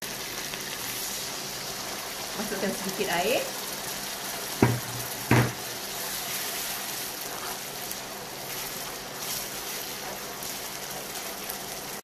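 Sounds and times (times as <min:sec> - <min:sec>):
paste sizzling in hot oil: 0:00.0 - 0:12.0
spatula stirring in wok: 0:03.8 - 0:12.0.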